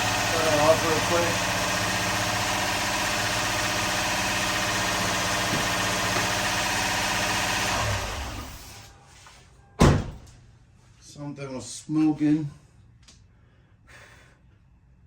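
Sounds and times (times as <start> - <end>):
car engine running: 0.0 - 8.9.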